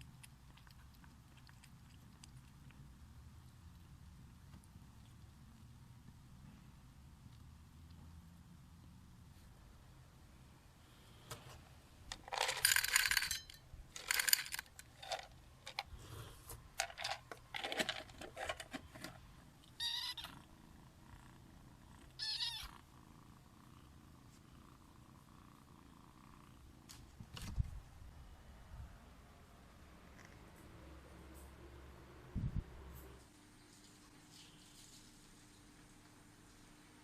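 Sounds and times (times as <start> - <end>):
rustling and handling noises: 11.1 - 19.5, 26.8 - 27.9
kitten meowing: 19.8 - 20.4, 22.2 - 22.8.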